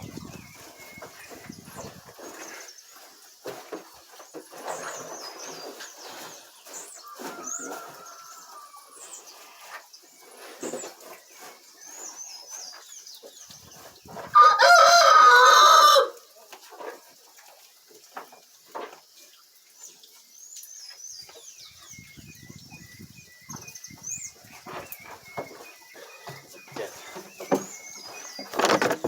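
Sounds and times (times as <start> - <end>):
rooster crowing: 7.1 - 9.0, 14.3 - 16.2.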